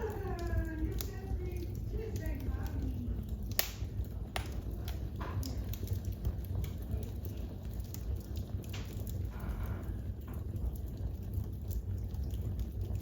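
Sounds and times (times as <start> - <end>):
wood fire crackling: 0.0 - 13.0
sharp pops: 3.5 - 4.6.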